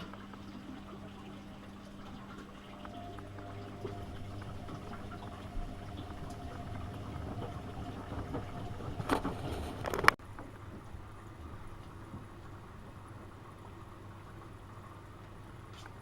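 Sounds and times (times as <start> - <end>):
water sloshing in drum: 0.0 - 13.8
washing machine hum: 0.0 - 16.0.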